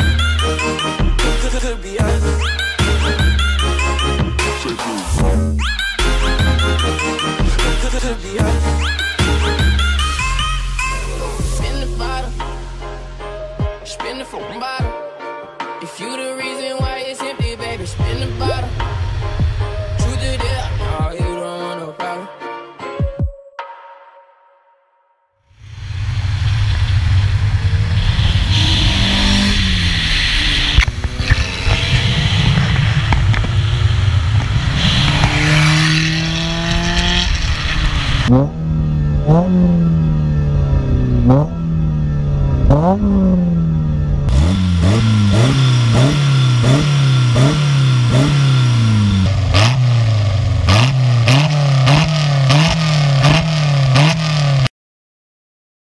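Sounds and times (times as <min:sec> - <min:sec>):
car engine revving in blips: 0:17.6 - 0:21.1, 0:25.6 - 0:54.7
rally cars driving past: 0:25.8 - 0:54.6.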